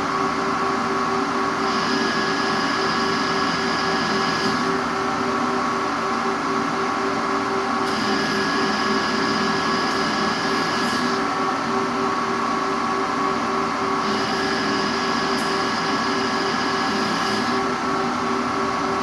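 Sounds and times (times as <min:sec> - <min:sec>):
high-pitched metal cutting noise: 0:01.6 - 0:04.8, 0:07.8 - 0:11.3, 0:14.0 - 0:17.7
machine tool humming: 0:01.6 - 0:05.2, 0:07.8 - 0:11.4, 0:14.0 - 0:18.0.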